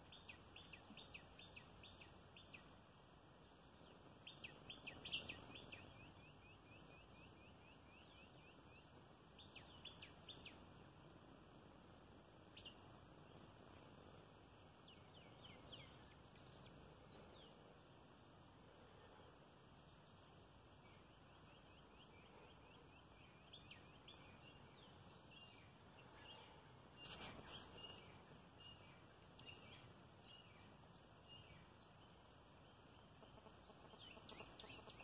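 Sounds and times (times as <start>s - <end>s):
rustling noise: 26.9s - 28.8s.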